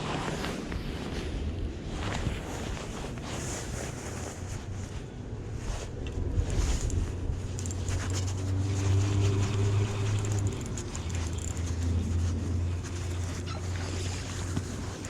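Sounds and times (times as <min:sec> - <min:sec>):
wind noise on microphone: 0:00.0 - 0:15.0
engine running: 0:03.1 - 0:15.0.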